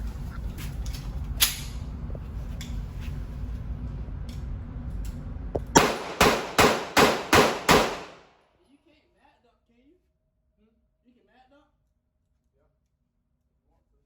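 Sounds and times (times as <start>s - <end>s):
low wind rumble: 0.0s - 8.2s
gunshots: 5.8s - 8.2s.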